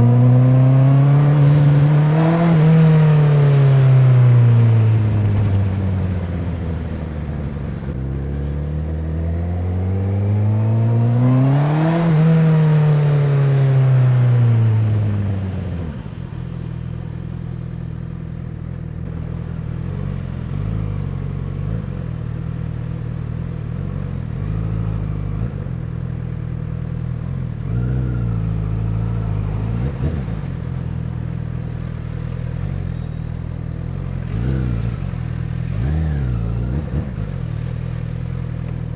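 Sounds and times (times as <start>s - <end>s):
motorcycle engine revving: 0.0s - 5.7s, 8.0s - 15.3s, 33.8s - 38.7s.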